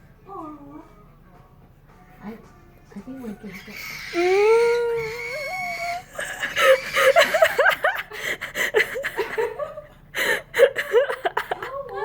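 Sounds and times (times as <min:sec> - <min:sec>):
person laughing: 0:06.0 - 0:12.0.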